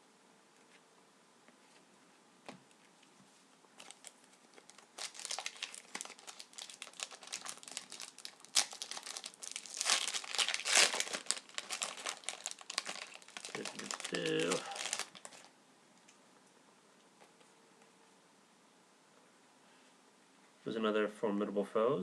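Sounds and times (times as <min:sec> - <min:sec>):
wrapper crinkling and tearing: 0:03.8 - 0:15.5.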